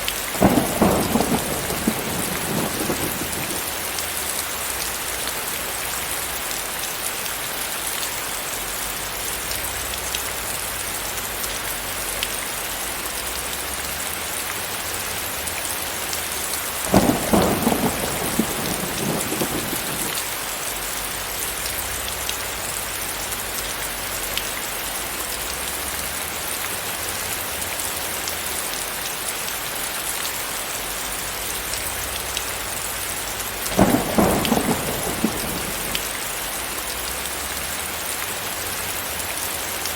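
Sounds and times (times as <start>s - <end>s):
rain hiss: 0.0s - 39.9s
thunder clap rumbling: 0.4s - 3.9s, 16.9s - 20.3s, 33.6s - 36.4s.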